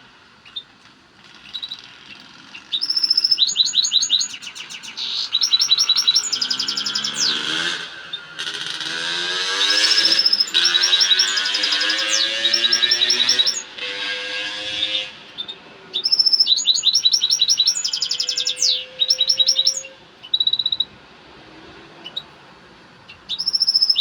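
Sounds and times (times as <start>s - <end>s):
finch twittering song: 0.4s - 13.9s, 14.6s - 21.0s, 22.0s - 22.4s, 23.0s - 24.0s.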